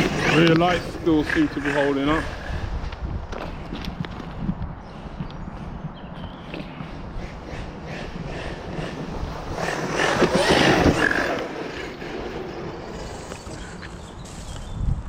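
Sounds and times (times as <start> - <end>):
rc truck driving over rough ground: 0.0 - 4.4, 6.4 - 15.0.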